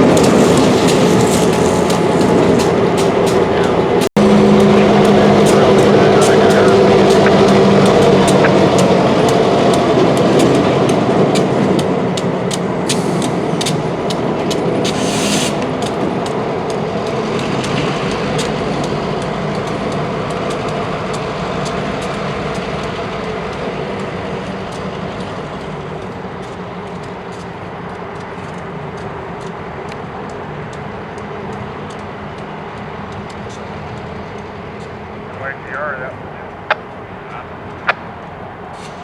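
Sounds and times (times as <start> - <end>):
train wheels clicking over rail joints: 0.0 - 36.0
locomotive engine hum: 0.0 - 39.0
short hiss: 14.9 - 15.6.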